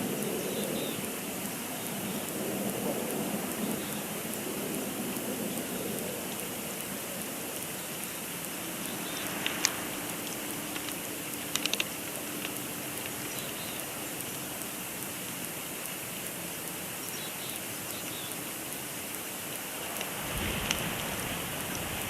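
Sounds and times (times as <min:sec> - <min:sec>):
sharp clicks: 0:00.1 - 0:21.0.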